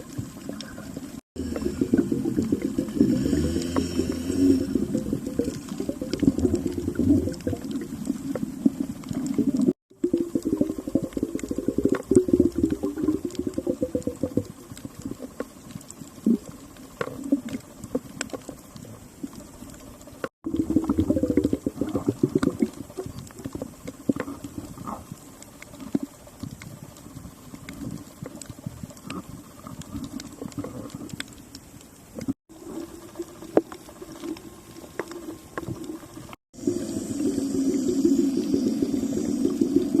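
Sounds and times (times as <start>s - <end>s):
underwater air bubbles gurgling: 0.0s - 40.0s.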